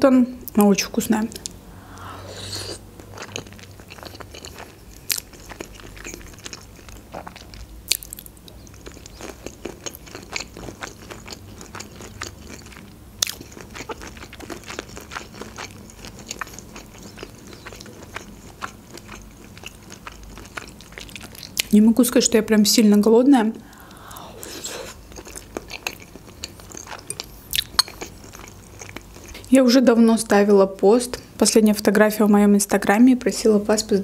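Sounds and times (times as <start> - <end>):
wet chewing mouth clicks: 1.3 - 21.7.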